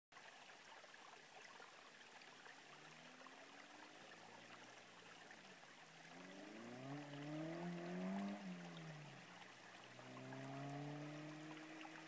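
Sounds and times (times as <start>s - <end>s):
distant car engine accelerating: 6.0s - 12.0s.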